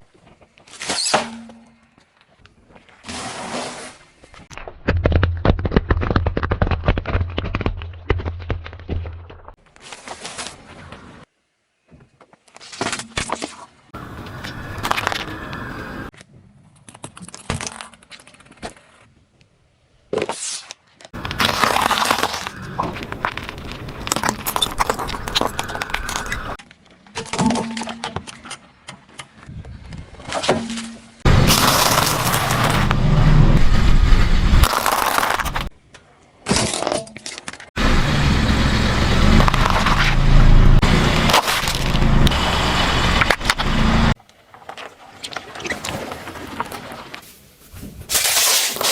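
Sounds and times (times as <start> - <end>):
objects crunching under tyres: 0.0 - 11.3, 11.9 - 19.1, 20.1 - 37.8, 39.1 - 48.9
objects cracking and crunching: 4.5 - 10.1, 20.8 - 28.6, 31.3 - 33.0, 34.6 - 35.8, 39.3 - 40.2, 41.1 - 42.4
car engine rumble: 31.3 - 34.7, 37.8 - 44.2.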